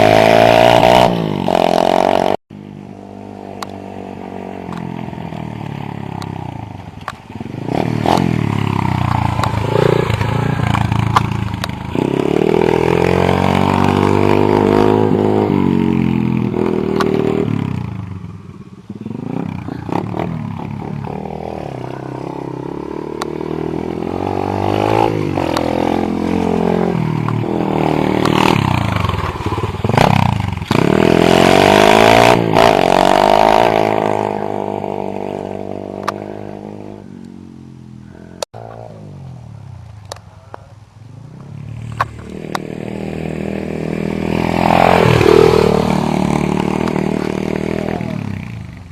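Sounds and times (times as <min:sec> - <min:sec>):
pit bike engine revving: 0:00.0 - 0:39.6, 0:41.1 - 0:48.9.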